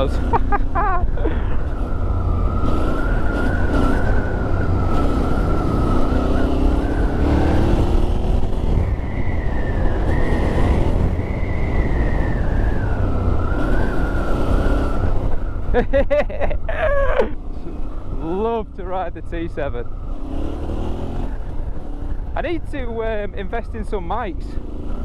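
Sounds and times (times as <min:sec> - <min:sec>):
motorcycle engine running: 0:00.0 - 0:15.6
wind noise: 0:00.0 - 0:25.0
steady high whistle: 0:08.7 - 0:15.6.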